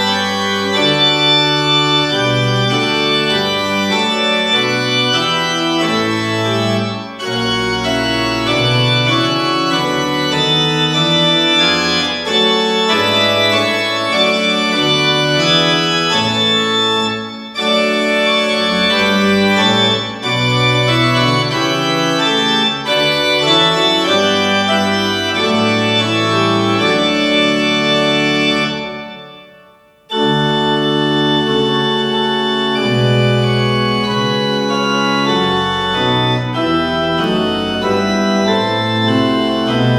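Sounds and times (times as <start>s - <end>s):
organ playing slow chords: 0.0s - 39.9s.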